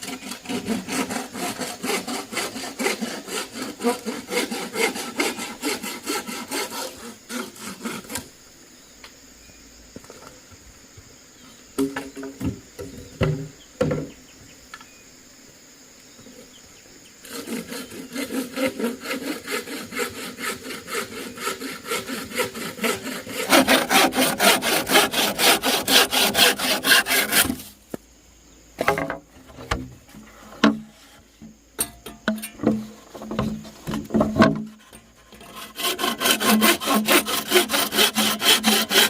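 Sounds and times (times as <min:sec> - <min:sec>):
hand saw cutting wood: 0:00.0 - 0:08.3, 0:17.2 - 0:27.7, 0:32.1 - 0:39.0.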